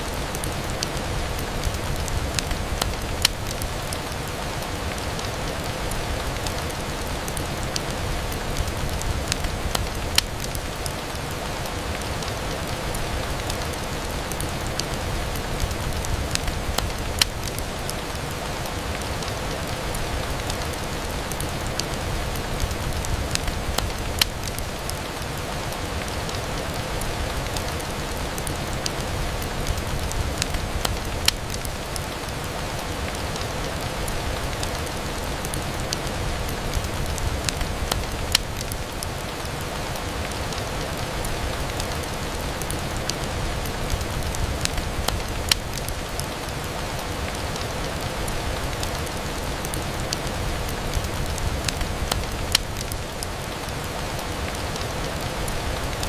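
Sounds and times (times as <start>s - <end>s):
rain on a window pane: 0.0s - 56.0s
raindrop ticks: 0.0s - 56.0s.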